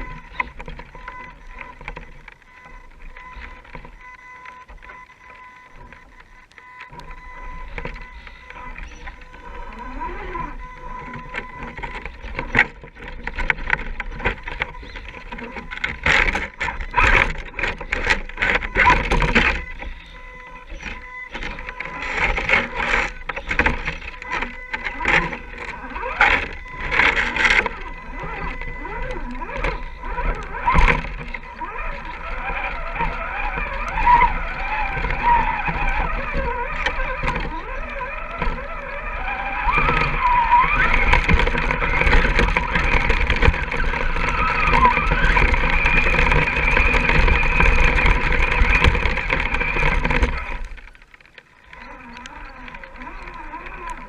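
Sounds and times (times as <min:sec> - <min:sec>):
clicks and knocks on rough ground: 0:00.0 - 0:54.0
electric motor whining: 0:00.0 - 0:54.0.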